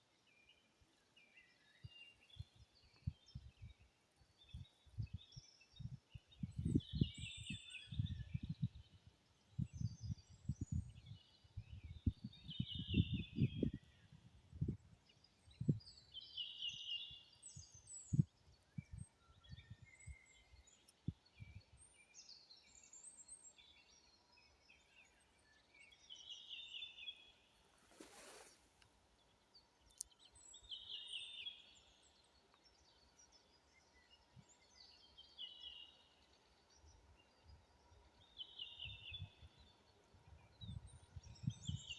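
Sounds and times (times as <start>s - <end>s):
songbirds singing: 0.0s - 41.9s.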